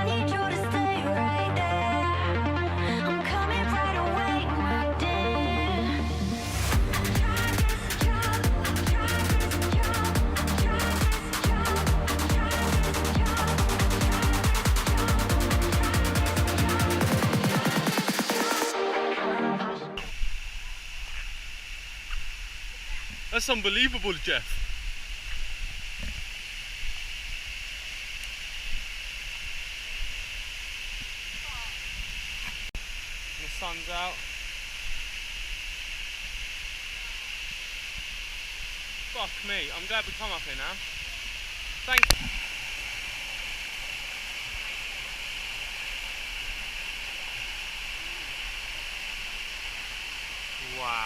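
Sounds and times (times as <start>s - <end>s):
high-pitched drone: 0.0s - 20.2s
low rumble: 5.0s - 16.0s
waterfall rushing: 5.4s - 32.4s, 33.0s - 51.0s.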